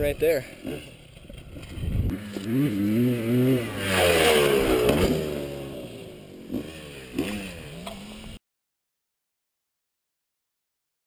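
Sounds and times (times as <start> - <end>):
dirt bike engine revving: 0.4 - 8.4.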